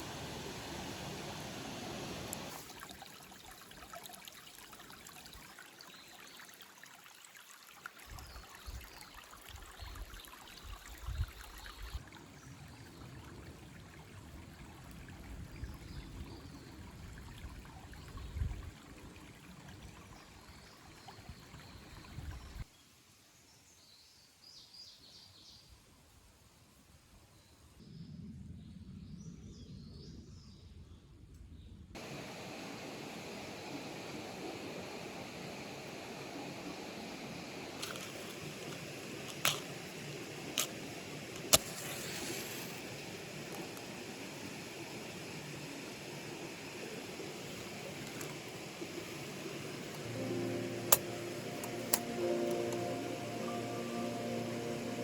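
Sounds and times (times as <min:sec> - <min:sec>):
river water rushing: 0:47.0 - 0:55.0.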